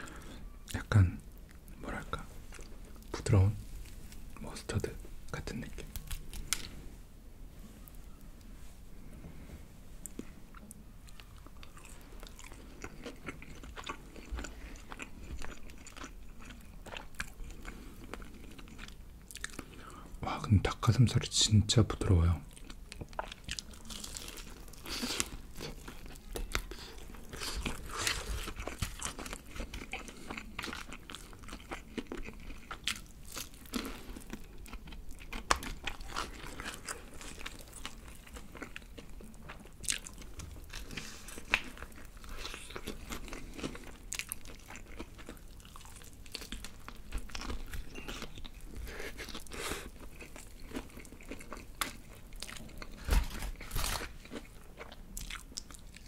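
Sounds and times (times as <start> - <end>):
chewing: 10.0 - 19.9, 22.5 - 56.0
fried chicken crunching: 22.6 - 56.0.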